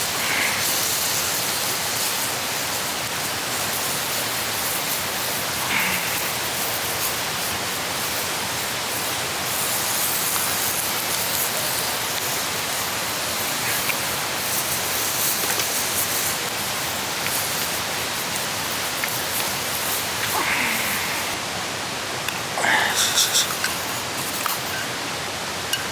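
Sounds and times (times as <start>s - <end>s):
campfire crackles: 0.0s - 25.9s
food sizzling in a pan: 0.0s - 25.9s.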